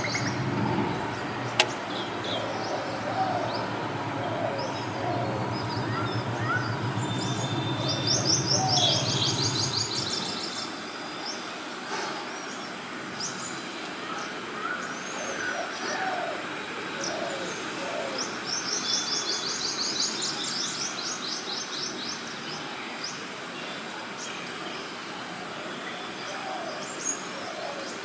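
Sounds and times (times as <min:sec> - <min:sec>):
lower bird calls: 0:00.0 - 0:10.6
birds chirping: 0:00.0 - 0:11.5
steady background hiss: 0:00.0 - 0:28.0.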